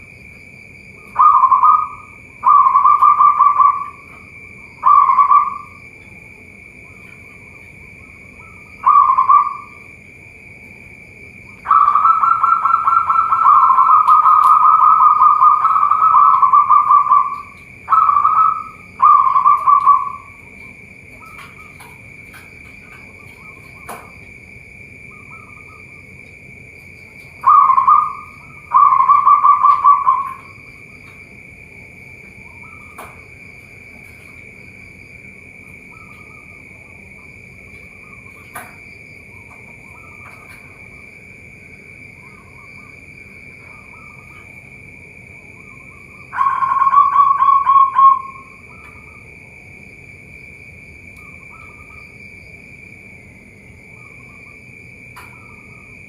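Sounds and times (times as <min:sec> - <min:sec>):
high-pitched hum: 0:00.0 - 0:56.0
faint bird chirps: 0:00.9 - 0:06.1, 0:06.7 - 0:09.9, 0:11.5 - 0:22.0, 0:22.8 - 0:24.2, 0:25.1 - 0:26.2, 0:32.3 - 0:33.3, 0:35.6 - 0:41.1, 0:42.2 - 0:44.5, 0:45.4 - 0:49.3, 0:51.1 - 0:52.2
doves cooing: 0:00.9 - 0:49.4.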